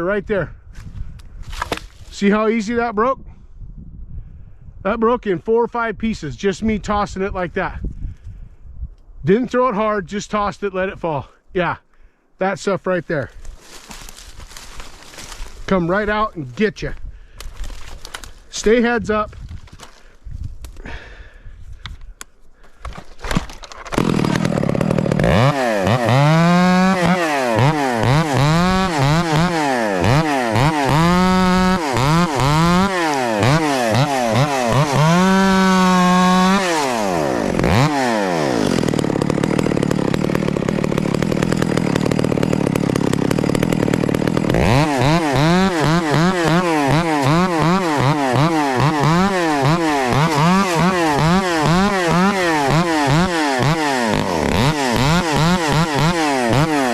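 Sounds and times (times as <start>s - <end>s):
chainsaw revving: 22.9s - 56.9s.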